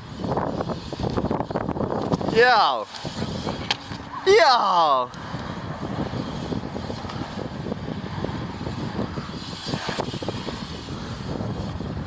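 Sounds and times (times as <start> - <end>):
wind on microphone: 0.0 - 4.2, 5.0 - 12.0
bike tyres rolling on concrete: 0.0 - 12.0
bike clicks and knocks: 0.2 - 4.2, 6.1 - 7.8.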